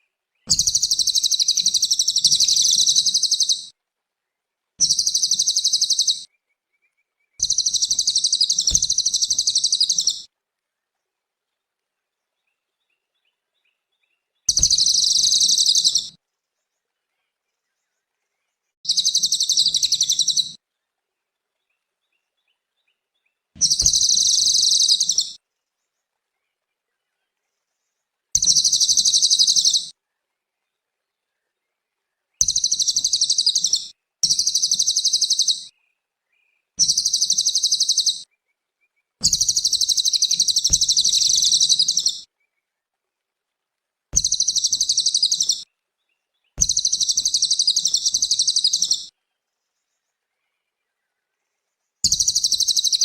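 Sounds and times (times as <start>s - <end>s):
bird singing fast trills: 0.5s - 3.7s, 4.8s - 6.3s, 7.4s - 10.2s, 14.5s - 16.1s, 18.9s - 20.6s, 23.6s - 25.4s, 28.4s - 29.9s, 32.4s - 35.7s, 36.8s - 38.3s, 39.2s - 42.3s, 44.2s - 45.7s, 46.4s - 49.1s, 52.0s - 53.0s.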